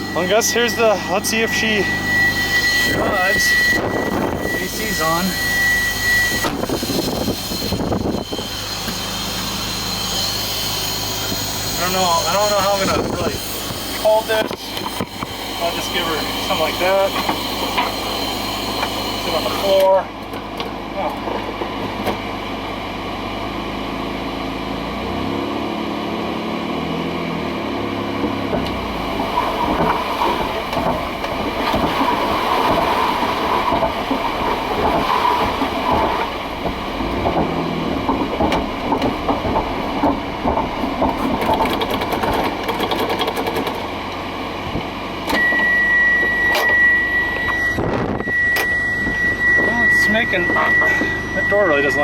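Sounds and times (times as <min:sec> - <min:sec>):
high warning beep: 0:00.0 - 0:08.6, 0:45.3 - 0:52.0
car engine running: 0:00.0 - 0:18.0, 0:20.2 - 0:45.3
car rattling and clattering: 0:00.0 - 0:22.4, 0:27.4 - 0:45.3.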